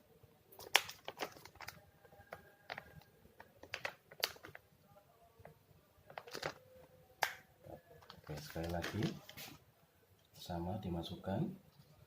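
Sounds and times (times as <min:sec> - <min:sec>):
plastic cup clicks and taps: 0:07.2 - 0:07.5.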